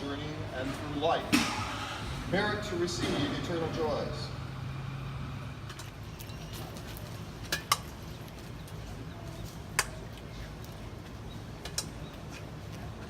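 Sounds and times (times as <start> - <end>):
low outdoor background hum: 0.0 - 13.0.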